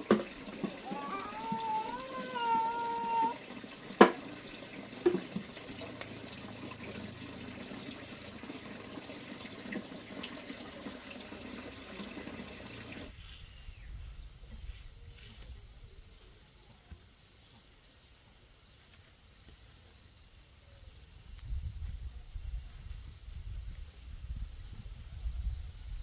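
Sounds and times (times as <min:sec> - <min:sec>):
water running: 0:00.0 - 0:13.2
faint insect chirping: 0:13.2 - 0:26.0.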